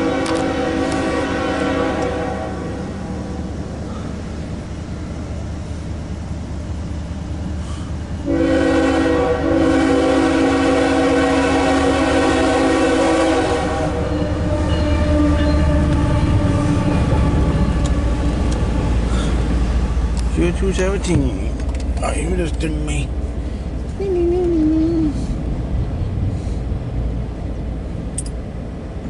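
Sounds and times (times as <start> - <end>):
locomotive air horn: 0.0 - 4.0, 8.2 - 18.3
diesel train rumble: 0.0 - 29.0.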